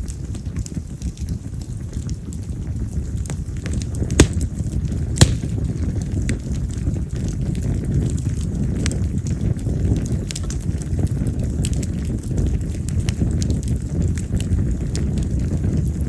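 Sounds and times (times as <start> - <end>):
bonfire crackling: 0.0 - 16.0
loud sharp pops: 4.1 - 5.9.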